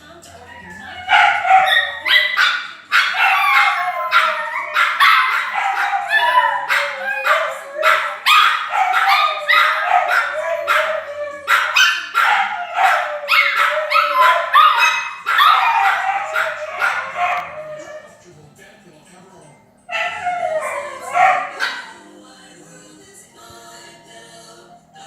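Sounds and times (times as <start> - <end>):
dogs howling: 0.3 - 18.2, 19.9 - 22.0
dogs barking: 0.4 - 18.2, 19.9 - 22.0.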